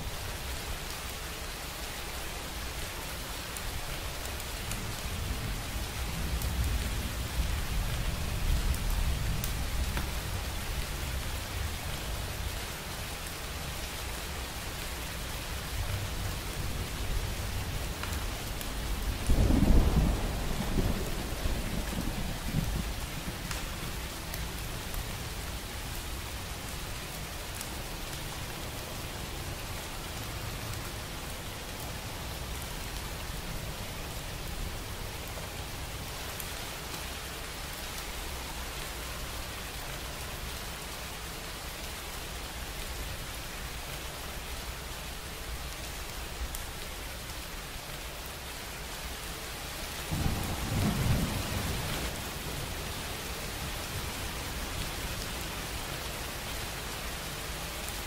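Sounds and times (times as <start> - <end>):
steady rain: 0.0 - 58.0
rumbling thunder: 19.2 - 23.5, 50.1 - 52.2.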